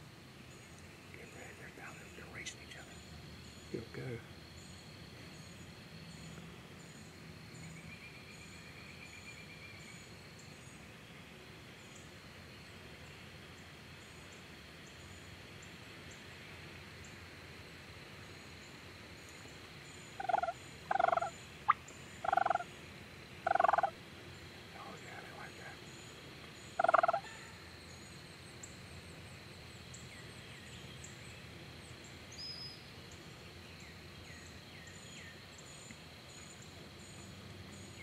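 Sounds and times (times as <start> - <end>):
turkeys gobbling: 20.2 - 22.7, 23.4 - 24.0, 26.8 - 27.3.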